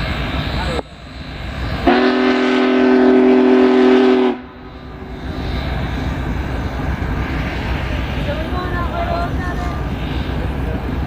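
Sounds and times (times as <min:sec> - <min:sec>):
steam whistle blowing: 0:01.9 - 0:04.6.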